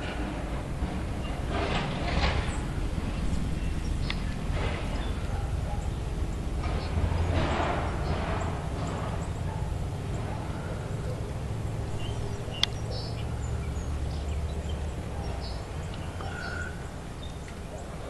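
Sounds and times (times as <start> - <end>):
birds chirping: 1.1 - 18.0.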